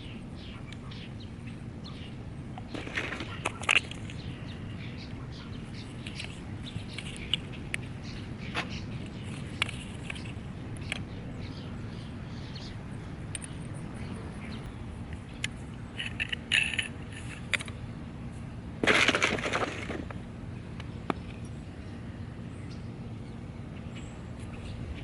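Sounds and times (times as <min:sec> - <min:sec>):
steady low rumble: 0:00.0 - 0:25.0
small metal parts clinking: 0:02.7 - 0:04.2, 0:16.0 - 0:17.7
metal clatter: 0:16.0 - 0:17.5.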